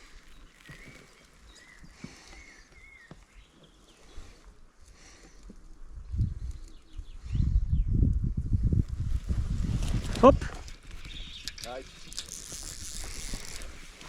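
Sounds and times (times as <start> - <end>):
soft rustles and clicks: 0.0 - 4.6, 8.8 - 14.0
low rumble of handling or wind: 0.0 - 14.0.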